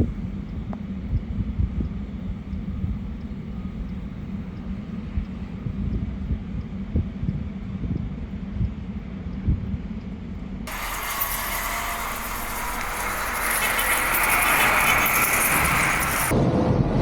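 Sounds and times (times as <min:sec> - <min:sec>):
vehicle passing with rushing noise: 0:10.7 - 0:16.4.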